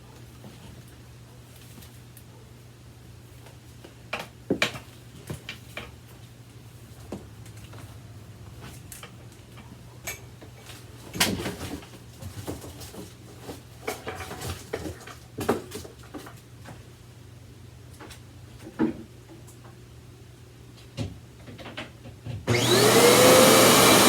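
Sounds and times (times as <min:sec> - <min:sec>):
vacuum cleaner parts knocking: 0:21.0 - 0:24.0.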